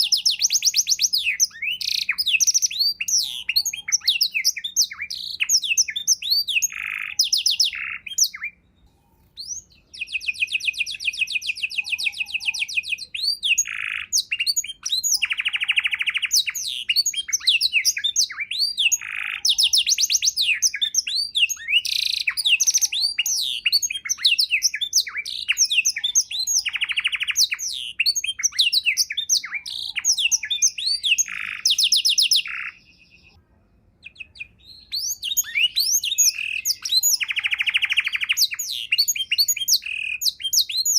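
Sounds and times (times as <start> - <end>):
canary singing trills and chirps: 0.0 - 33.4, 34.0 - 40.9.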